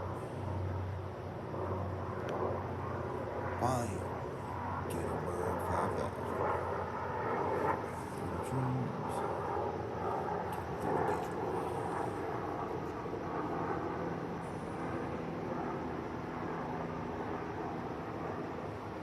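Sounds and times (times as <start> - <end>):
helicopter rotor and engine: 0.0 - 19.0.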